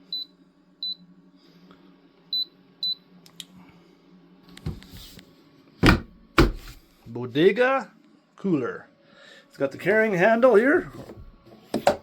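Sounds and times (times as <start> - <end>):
loud knock: 5.8 - 6.7
fridge low hum: 5.8 - 7.0, 10.5 - 12.0.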